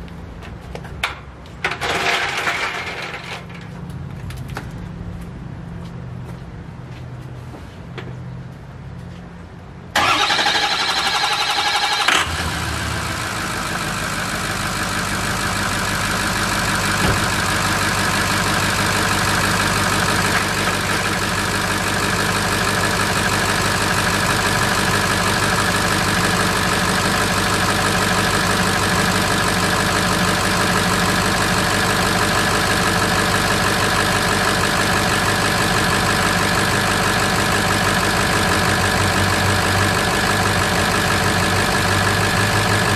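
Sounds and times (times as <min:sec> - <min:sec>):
engine starter cranking: 0:01.7 - 0:03.3, 0:10.0 - 0:12.7
engine idling: 0:10.0 - 0:42.9.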